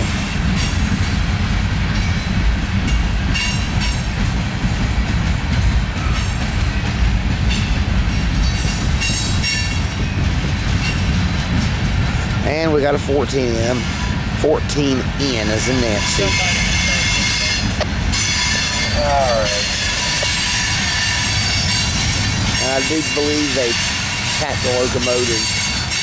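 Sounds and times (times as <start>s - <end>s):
train wheels rumbling on rail: 0.0s - 26.0s
high-pitched wheel squeals: 15.6s - 26.0s.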